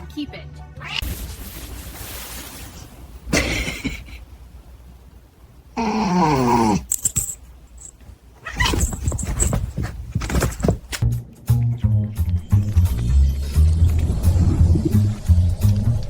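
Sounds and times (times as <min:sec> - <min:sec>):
scuffling and rustling: 0:01.0 - 0:03.2, 0:06.9 - 0:11.1
pet animal crying: 0:08.4 - 0:09.1.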